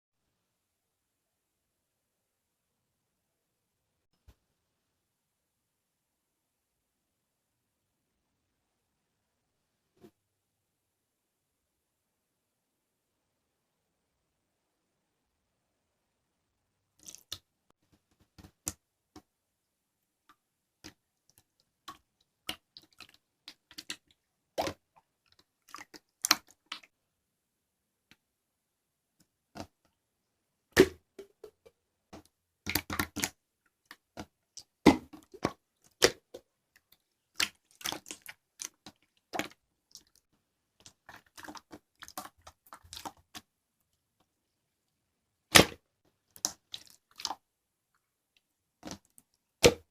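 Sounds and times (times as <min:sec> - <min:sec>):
slime squished by hand: 0:37.3 - 0:40.2.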